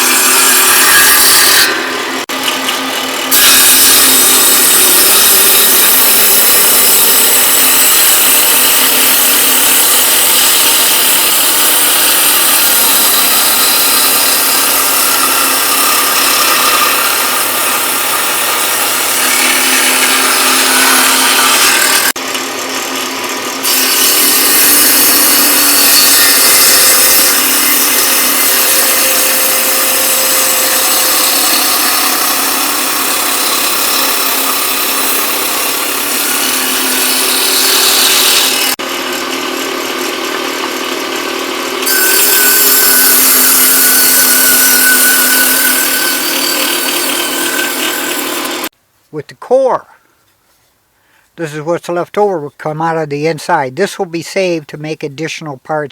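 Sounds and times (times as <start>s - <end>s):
power tool grinding wood: 0.0s - 48.7s.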